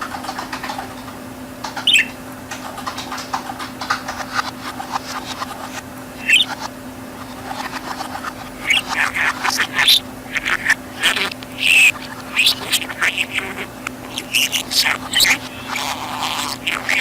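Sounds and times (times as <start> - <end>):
steady low hum: 0.0 - 17.0
budgerigar chattering: 1.8 - 2.2, 6.2 - 17.0.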